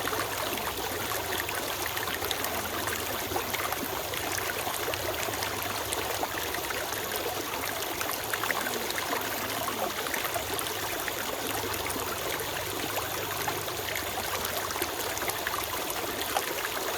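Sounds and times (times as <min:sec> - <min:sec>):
stream trickling over stones: 0:00.0 - 0:16.9.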